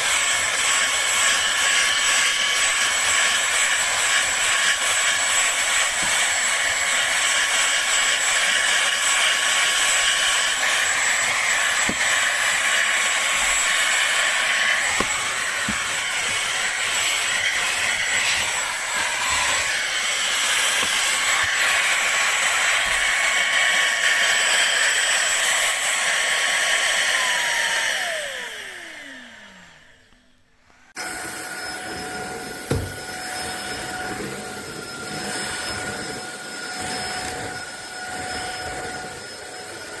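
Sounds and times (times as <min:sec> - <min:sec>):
vacuum cleaner whining: 0:00.0 - 0:40.0
motor spinning down: 0:02.3 - 0:30.4.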